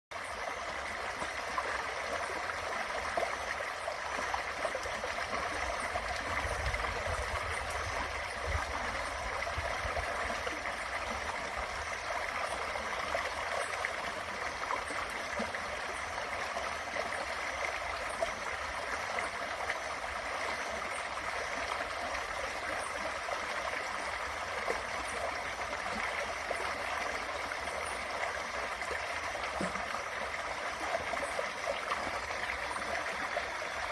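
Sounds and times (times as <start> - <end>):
creek water flowing: 0.1 - 33.9.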